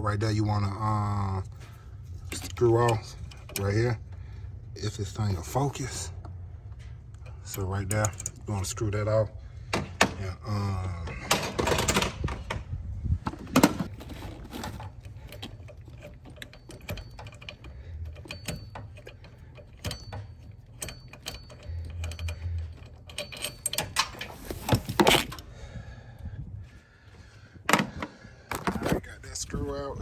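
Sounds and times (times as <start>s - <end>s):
ratcheting wrench clicking: 14.2s - 25.4s.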